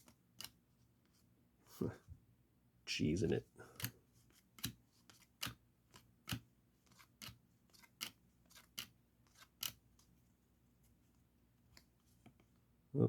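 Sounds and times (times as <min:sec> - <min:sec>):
cards snapping: 0:04.6 - 0:09.8.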